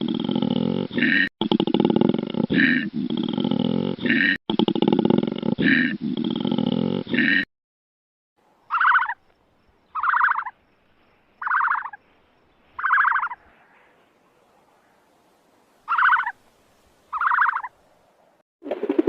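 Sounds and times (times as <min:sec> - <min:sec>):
animal pulsed call: 0:08.7 - 0:09.2, 0:09.9 - 0:10.5, 0:11.4 - 0:12.0, 0:12.8 - 0:13.9, 0:15.9 - 0:16.4, 0:17.1 - 0:17.7.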